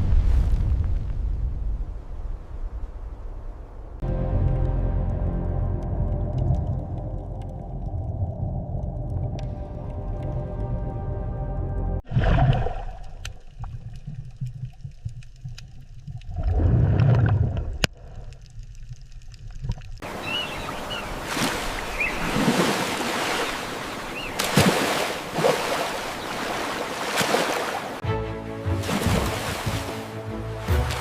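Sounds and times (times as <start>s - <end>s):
low underwater rumble: 0.0s - 21.1s
rushing water hiss: 20.0s - 28.0s, 28.8s - 31.0s.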